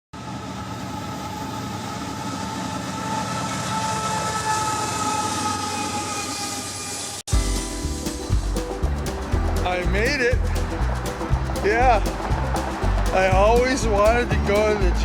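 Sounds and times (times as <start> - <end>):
train rumble and rattle: 7.8 - 15.0.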